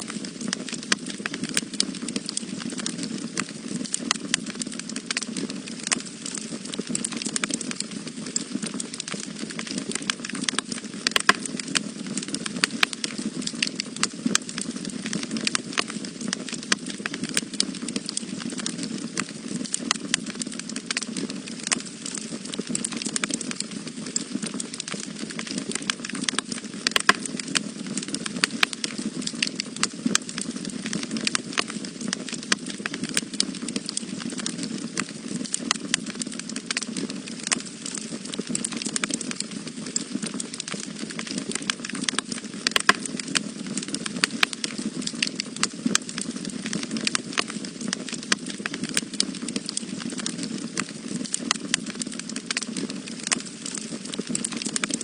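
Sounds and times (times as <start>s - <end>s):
flames rushing: 0.0s - 55.0s
wood fire crackling and popping: 0.0s - 55.0s.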